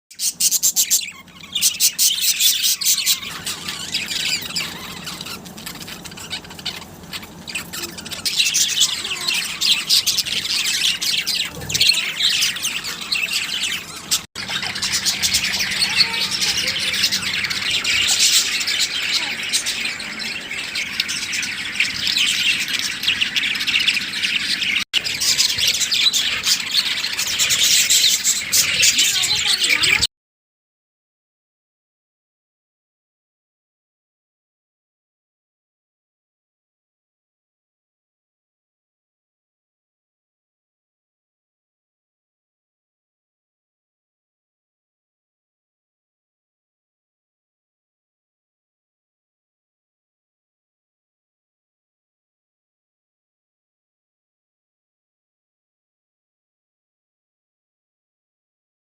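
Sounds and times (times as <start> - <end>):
budgerigars chattering: 0.2 - 30.1.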